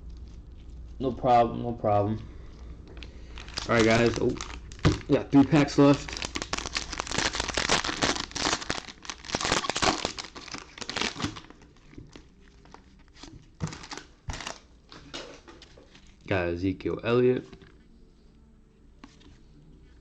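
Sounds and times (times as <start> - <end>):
plastic wrapper tearing and crinkling: 2.9 - 16.3.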